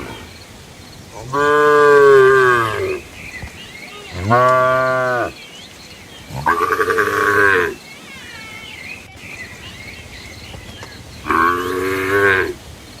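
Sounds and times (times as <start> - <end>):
faint high chirps: 2.4 - 13.0
cattle mooing: 4.1 - 5.3, 6.3 - 7.8, 11.2 - 12.6.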